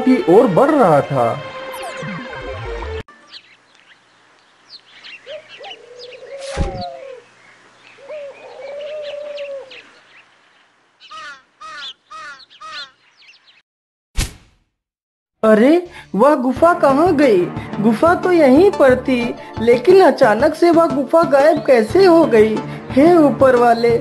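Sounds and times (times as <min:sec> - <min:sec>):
many birds chirping: 0:03.1 - 0:13.6
short bird calls: 0:03.2 - 0:13.6
low cooing calls: 0:04.7 - 0:13.4.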